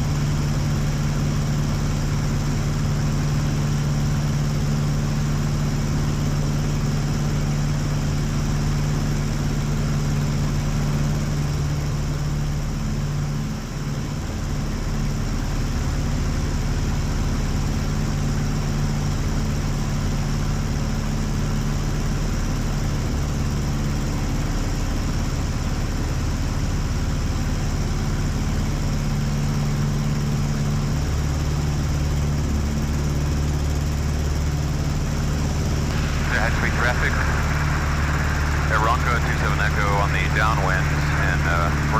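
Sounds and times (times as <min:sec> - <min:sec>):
propeller plane engine droning: 0:27.3 - 0:41.9.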